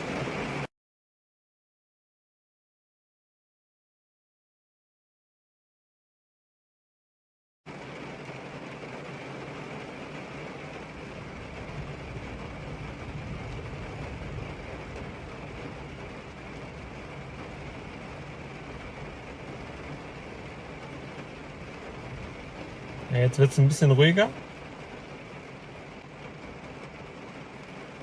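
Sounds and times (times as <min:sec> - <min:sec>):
heavy rain falling: 0:00.0 - 0:00.7, 0:07.7 - 0:28.0.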